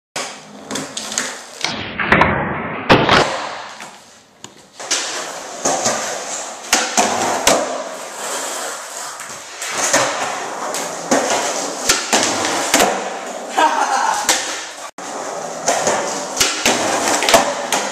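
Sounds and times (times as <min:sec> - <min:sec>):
skateboard rolling: 0:00.2 - 0:01.7, 0:03.2 - 0:13.6, 0:14.3 - 0:17.9
skateboard clacking on ground: 0:15.5 - 0:17.9.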